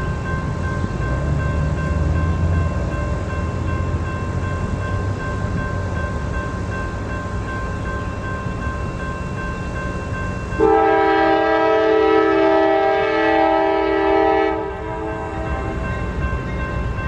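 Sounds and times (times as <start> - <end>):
train rumbling: 0.0 - 17.0
train air horn chord: 10.6 - 15.8.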